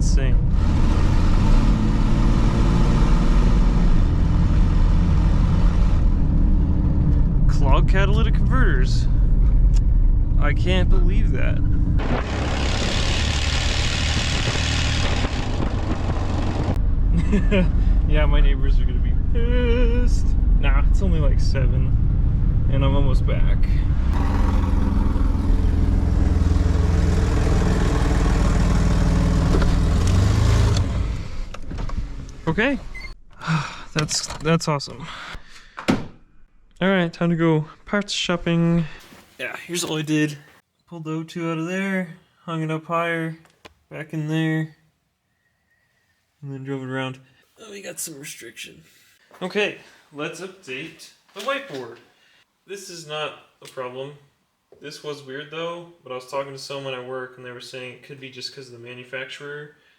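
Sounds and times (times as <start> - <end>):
loud unmuffled engine exhaust: 11.5 - 18.1, 23.8 - 31.5.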